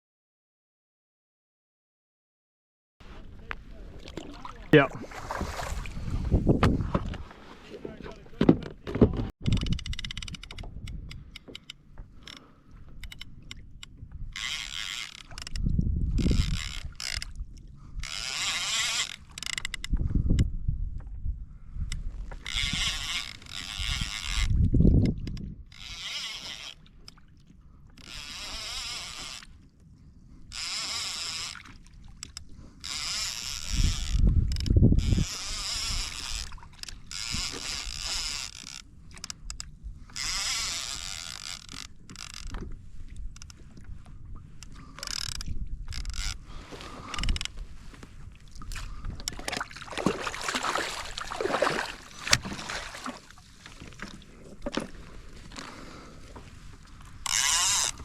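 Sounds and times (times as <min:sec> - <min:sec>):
water splashes: 0:03.6 - 0:06.2, 0:48.5 - 0:54.8
fishing reel winding: 0:09.4 - 0:20.5, 0:21.9 - 0:27.2, 0:28.0 - 0:29.7, 0:30.5 - 0:42.6, 0:44.6 - 0:46.4, 0:47.0 - 0:47.6, 0:52.1 - 0:52.4, 0:57.0 - 0:58.0.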